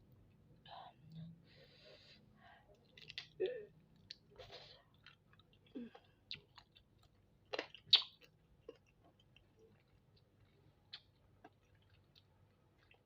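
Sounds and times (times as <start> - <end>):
wet chewing and sucking: 7.5 - 10.0.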